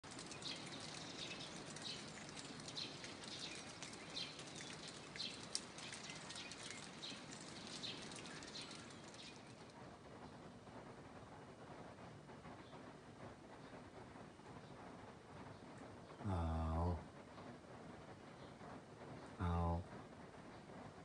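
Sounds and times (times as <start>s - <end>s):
birds chirping: 0.0s - 10.5s
faint hiss with ticking: 0.0s - 21.0s.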